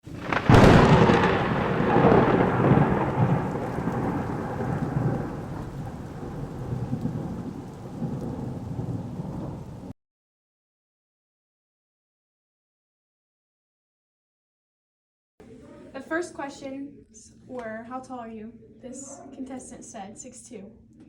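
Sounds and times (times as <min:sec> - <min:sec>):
thunder crack and rumble: 0:00.0 - 0:09.9
rain hiss: 0:00.1 - 0:09.9.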